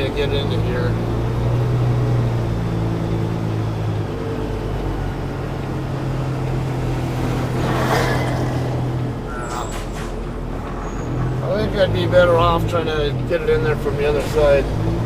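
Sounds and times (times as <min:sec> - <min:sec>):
diesel truck engine idling: 0:00.0 - 0:07.6.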